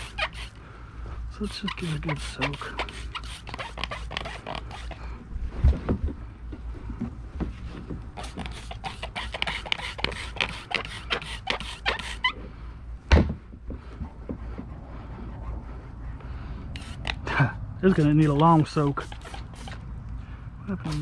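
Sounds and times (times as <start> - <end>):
spray bottle hissing squirts: 1.7 - 5.0, 8.2 - 12.3, 16.8 - 17.2, 17.9 - 19.8
loud thump: 13.1 - 13.5.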